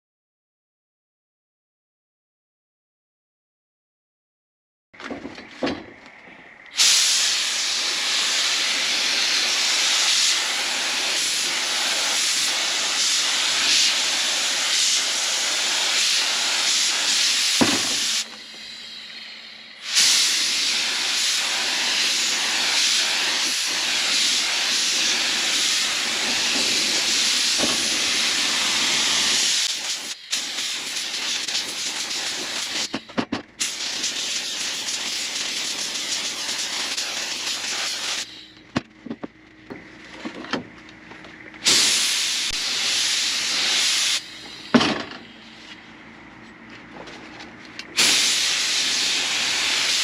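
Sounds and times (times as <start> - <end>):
loud steady hiss: 6.5 - 38.6, 41.6 - 45.8, 47.9 - 50.0.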